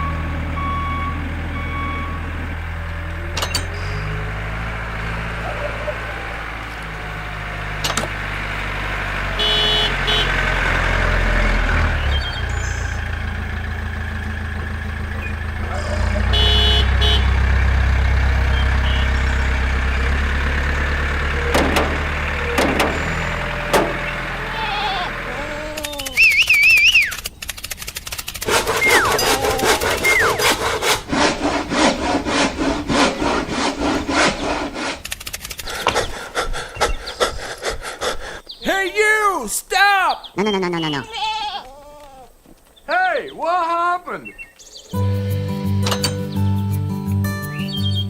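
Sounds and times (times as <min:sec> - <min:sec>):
small engine humming: 0:00.0 - 0:37.5
clicks: 0:25.4 - 0:29.3
high warbling chirps: 0:26.0 - 0:27.2.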